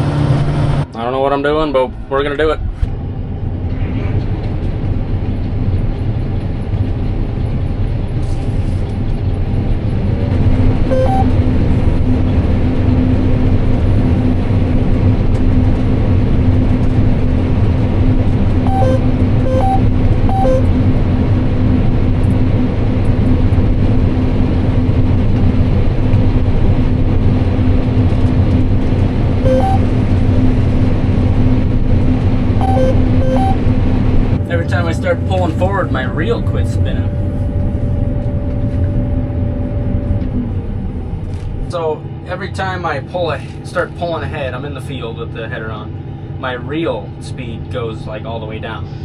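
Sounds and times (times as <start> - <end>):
combine harvester droning: 0.0 - 49.0
short electronic beeps: 10.9 - 11.3, 18.7 - 20.7, 29.5 - 29.8, 32.6 - 33.6.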